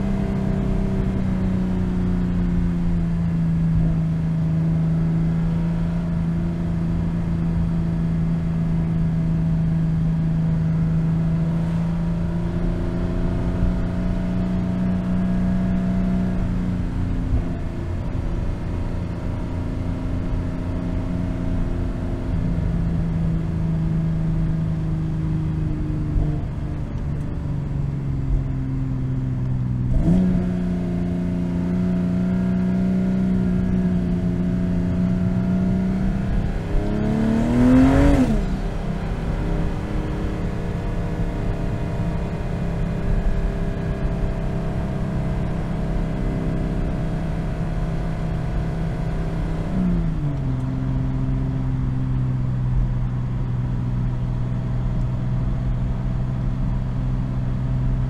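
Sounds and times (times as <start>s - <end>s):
car engine droning while cruising: 0.0s - 58.0s
tyre and road noise: 23.7s - 43.0s.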